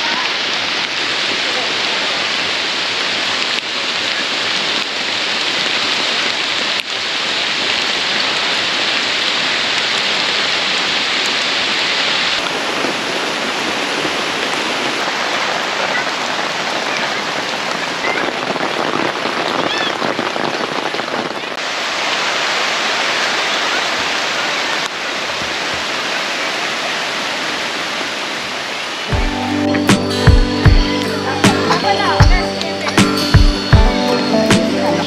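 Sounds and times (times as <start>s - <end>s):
heavy rain hissing: 0.0s - 35.0s.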